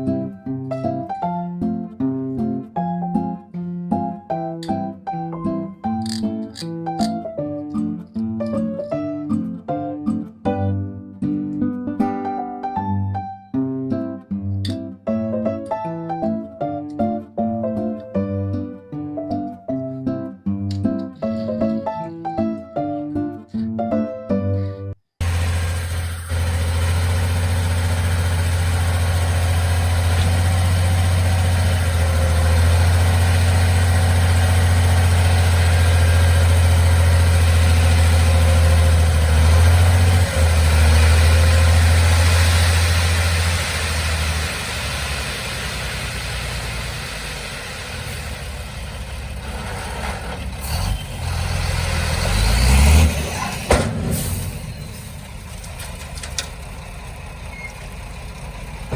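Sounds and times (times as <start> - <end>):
heavy diesel engine running: 25.2 - 58.9.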